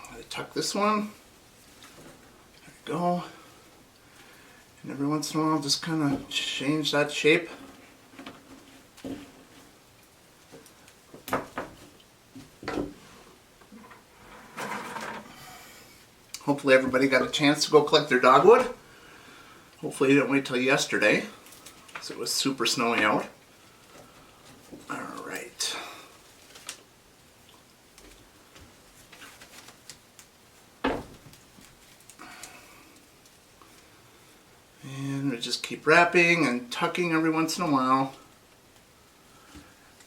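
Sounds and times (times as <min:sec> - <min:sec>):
twigs rustling: 0:20.6 - 0:34.2
twigs clicking: 0:26.4 - 0:26.9.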